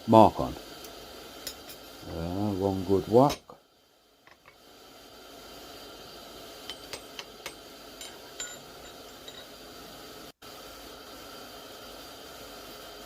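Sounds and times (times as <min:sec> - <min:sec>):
steady background hiss: 0:00.0 - 0:13.0
light metallic clinks: 0:06.7 - 0:09.6.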